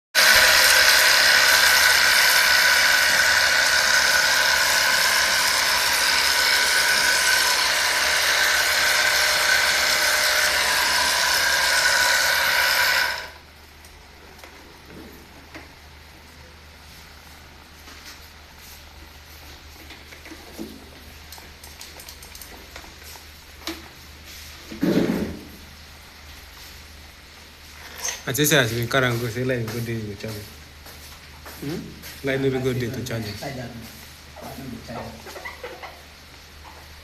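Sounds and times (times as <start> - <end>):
power tool motor whine: 0.2 - 13.4.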